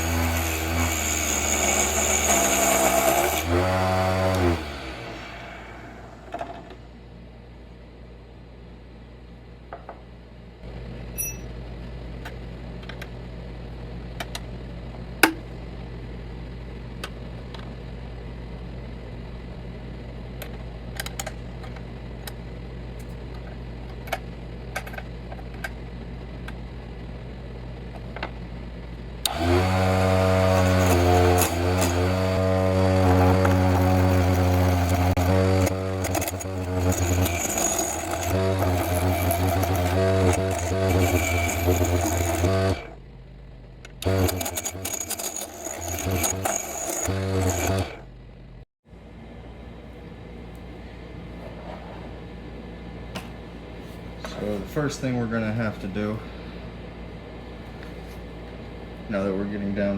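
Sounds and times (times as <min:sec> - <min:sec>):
wood lathe humming: 0:00.0 - 0:06.9, 0:29.2 - 0:43.0, 0:43.9 - 0:48.2
wavering whine and scraping: 0:04.6 - 0:07.0, 0:20.4 - 0:48.6.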